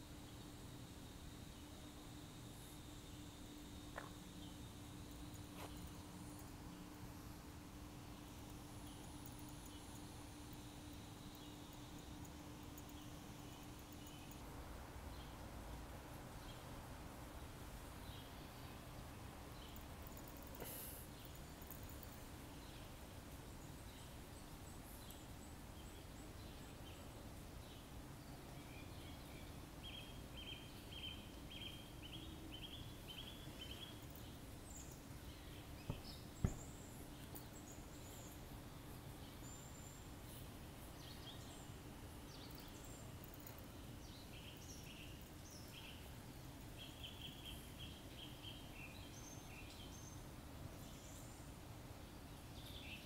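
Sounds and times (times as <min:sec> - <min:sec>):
faint outdoor ambience: 0:00.0 - 0:53.0
bird chirping: 0:27.7 - 0:38.4.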